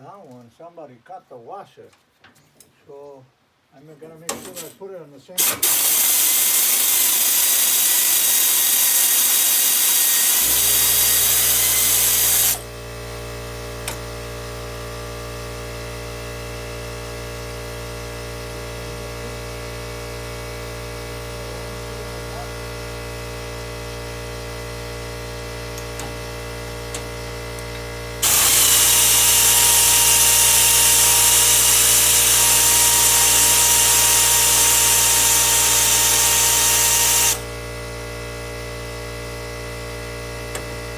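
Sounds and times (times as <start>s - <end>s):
loud hissing spray from nozzle: 5.4s - 9.8s, 10.4s - 12.6s, 28.2s - 37.4s
motor hum: 10.2s - 14.3s, 23.7s - 40.9s.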